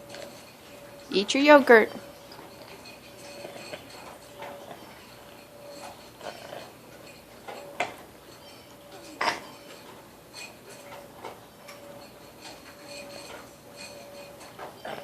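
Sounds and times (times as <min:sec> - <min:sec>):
spoon scraping dish: 0:00.0 - 0:15.0.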